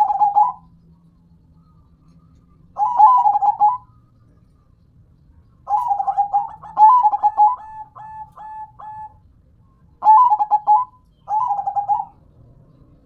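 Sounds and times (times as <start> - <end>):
dove cooing: 0.0 - 0.8, 1.6 - 4.1, 5.6 - 9.3, 10.0 - 12.4.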